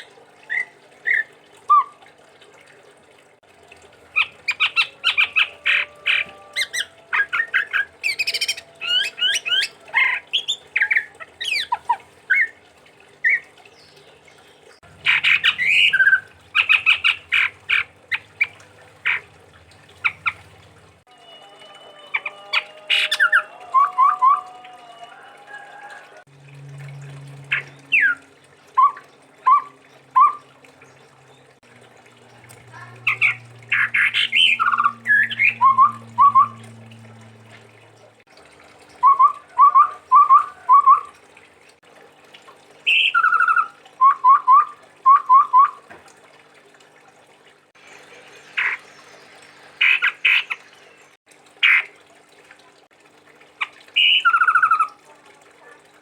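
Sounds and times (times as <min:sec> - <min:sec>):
high bird call notes: 0:04.2 - 0:11.8, 0:32.7 - 0:36.8
bird whistling song: 0:04.2 - 0:12.5, 0:15.0 - 0:18.5, 0:21.2 - 0:25.1, 0:28.8 - 0:30.5, 0:33.1 - 0:36.8, 0:39.0 - 0:41.1, 0:42.9 - 0:45.8, 0:54.0 - 0:54.9.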